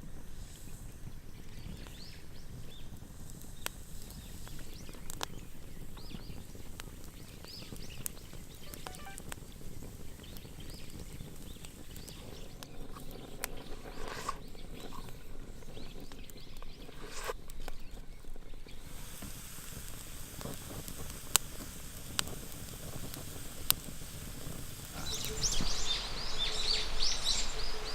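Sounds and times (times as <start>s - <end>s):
campfire crackling and hissing: 0.0s - 27.9s
sharp fire pops: 18.9s - 27.9s.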